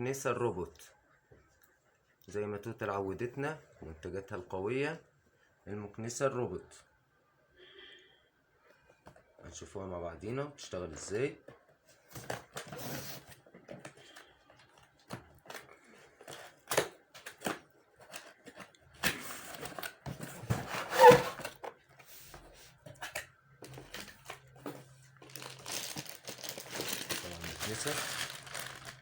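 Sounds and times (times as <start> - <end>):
scrape: 12.7 - 13.4, 19.2 - 22.8
plastic packaging crinkling: 23.6 - 29.0.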